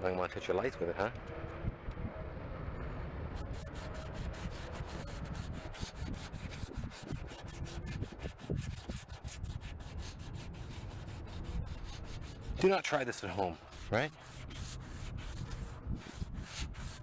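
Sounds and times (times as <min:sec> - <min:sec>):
sandpaper rubbing on plastic: 0:03.4 - 0:17.0.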